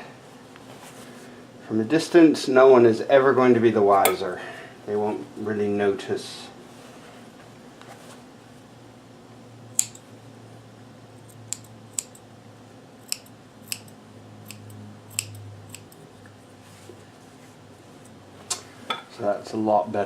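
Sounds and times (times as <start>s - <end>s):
faint steady hum: 0.0s - 20.0s
scissors snipping threads: 9.8s - 10.0s, 11.2s - 12.2s, 13.0s - 16.0s.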